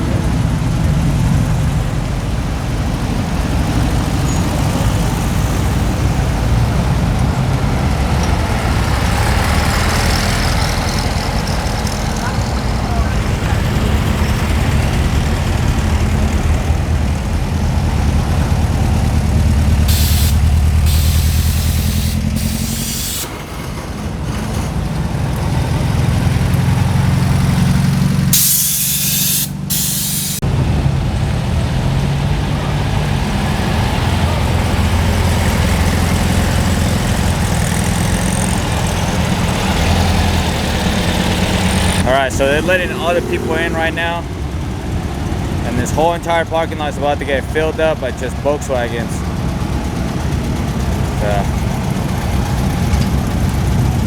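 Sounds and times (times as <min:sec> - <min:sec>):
car engines idling: 0:00.0 - 0:54.0
short hisses: 0:19.9 - 0:23.5, 0:28.4 - 0:30.4.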